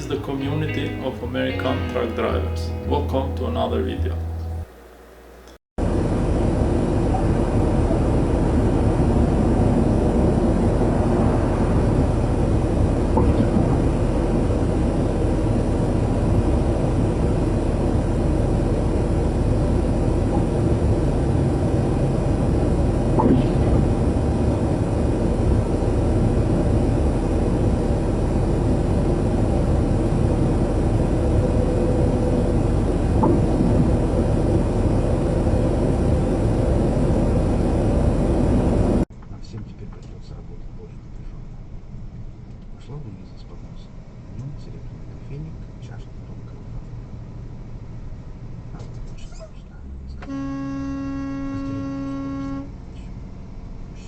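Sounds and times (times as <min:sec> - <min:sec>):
vehicle engine and tyre drone: 0:05.8 - 0:39.0.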